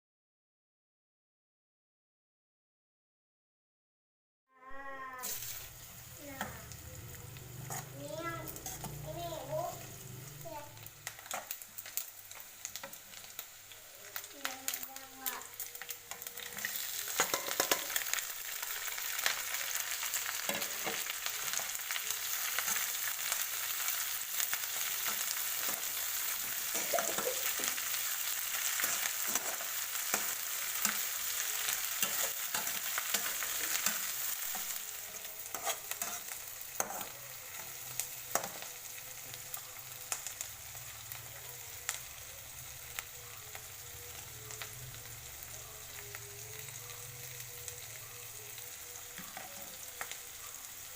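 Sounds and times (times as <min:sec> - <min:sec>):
food sizzling in hot oil: 0:04.6 - 0:50.9
utensil stirring in wok: 0:05.2 - 0:10.4, 0:16.1 - 0:38.8.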